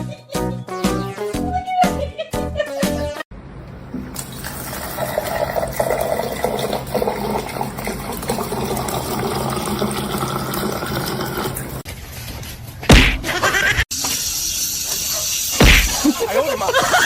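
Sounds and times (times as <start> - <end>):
running water: 3.9 - 11.8.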